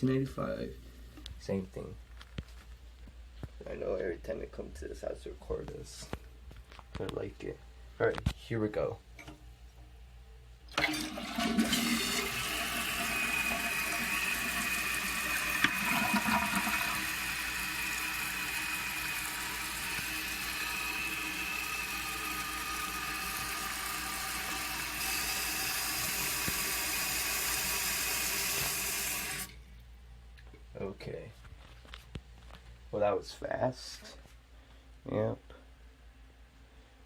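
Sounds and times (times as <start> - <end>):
toilet flushing: 10.7 - 29.6
toilet tank refilling with hiss: 10.7 - 29.6.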